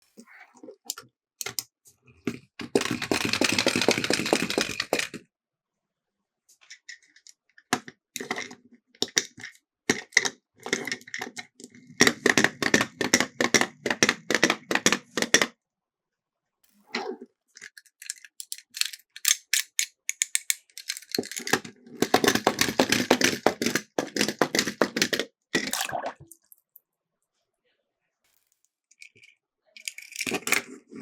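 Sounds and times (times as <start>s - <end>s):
toy cars clattering on plastic track: 1.4s - 5.2s, 6.6s - 15.5s, 17.6s - 25.7s, 28.9s - 31.0s.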